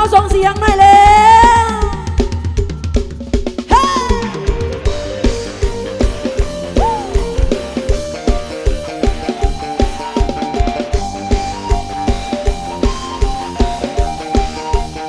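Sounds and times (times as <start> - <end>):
drum kit dance beat: 0.0 - 15.0
instrumental melody line: 3.0 - 15.0.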